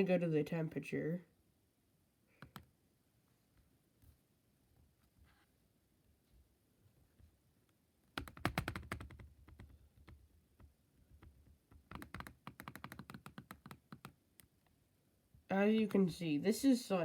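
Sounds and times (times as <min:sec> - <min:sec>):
computer keyboard typing: 0:02.4 - 0:02.7, 0:08.2 - 0:10.2, 0:11.2 - 0:14.5.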